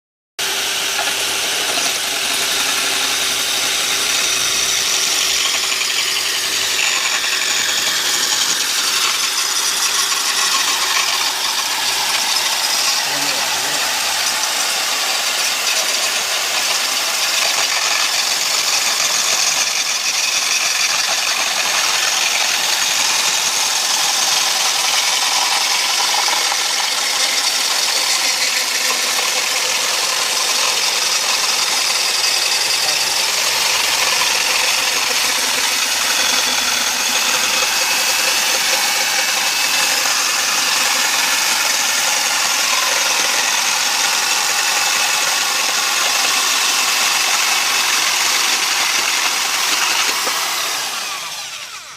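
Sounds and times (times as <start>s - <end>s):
electric drill with saw blade whirring: 0.4s - 51.9s.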